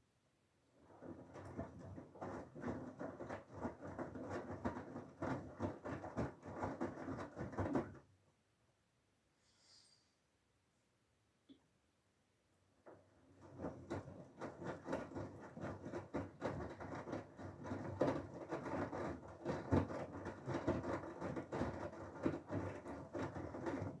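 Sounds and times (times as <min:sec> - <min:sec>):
water sloshing inside drum: 0:12.9 - 0:24.0.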